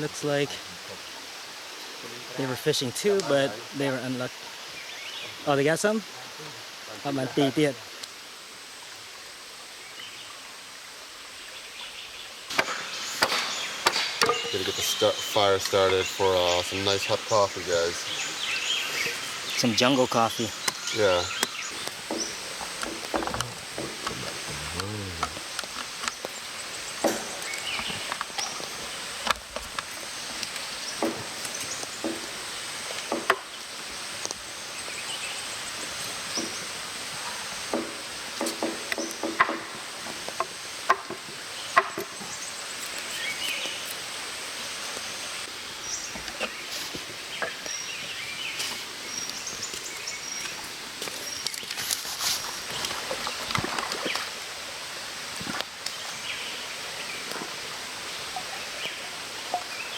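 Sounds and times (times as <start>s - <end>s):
outdoor hiss: 0.0s - 59.9s
sticks knocking and snapping: 21.4s - 26.3s.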